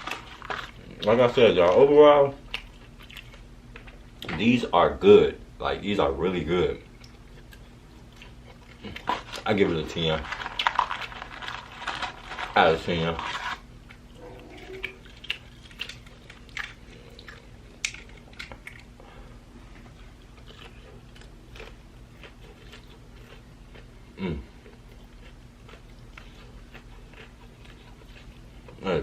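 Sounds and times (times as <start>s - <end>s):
crunchy chewing: 0.0s - 4.3s, 6.9s - 19.1s, 19.7s - 29.0s.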